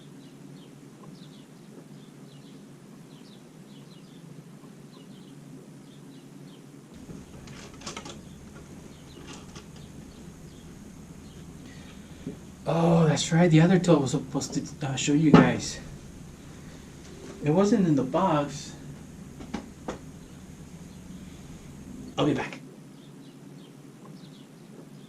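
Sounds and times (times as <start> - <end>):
small birds chirping: 4.9 - 25.0
soft knocks: 7.0 - 22.2.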